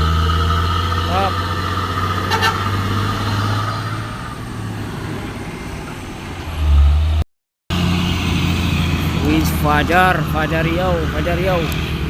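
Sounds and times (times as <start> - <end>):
diesel truck engine droning: 0.0 - 12.0.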